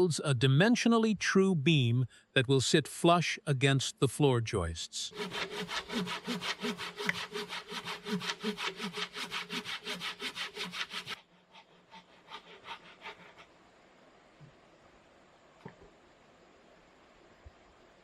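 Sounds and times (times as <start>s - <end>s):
hand saw sawing log: 5.1s - 13.5s.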